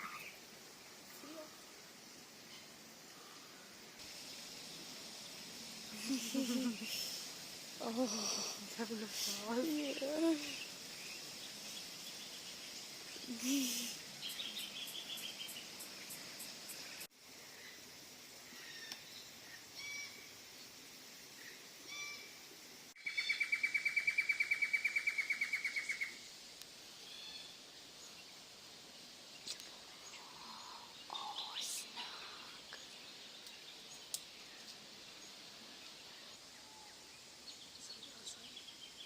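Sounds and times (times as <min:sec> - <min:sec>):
birds chirping: 0:06.0 - 0:17.0.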